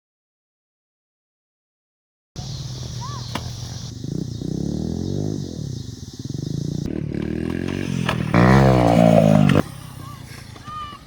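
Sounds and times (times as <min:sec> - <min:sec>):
small motorbike engine revving: 0:02.4 - 0:11.0.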